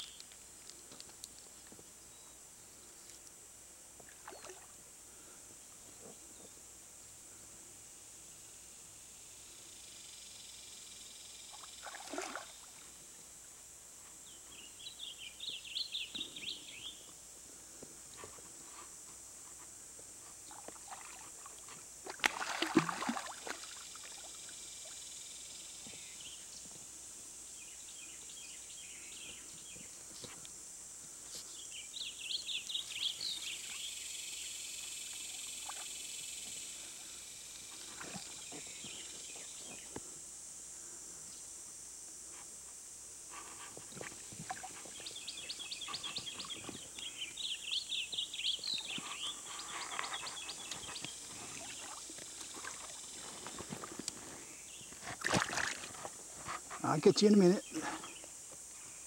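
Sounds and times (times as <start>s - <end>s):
steady high-pitched hiss: 0.0s - 59.0s
bird chirping: 31.5s - 36.8s, 44.9s - 53.3s.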